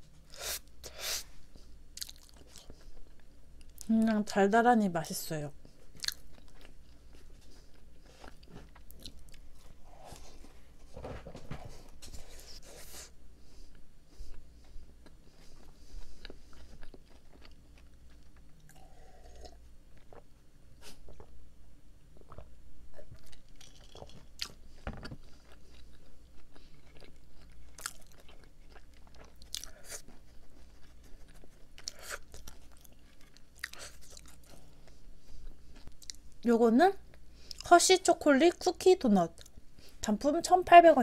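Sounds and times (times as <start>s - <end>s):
chewing with wet mouth sounds: 1.5s - 3.9s, 5.7s - 9.7s, 13.6s - 21.4s, 22.1s - 36.3s.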